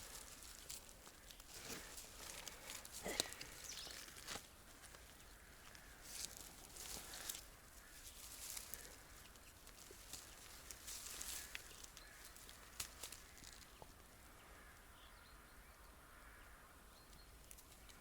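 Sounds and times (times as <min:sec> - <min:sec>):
rustling and handling noises: 0:00.0 - 0:13.8.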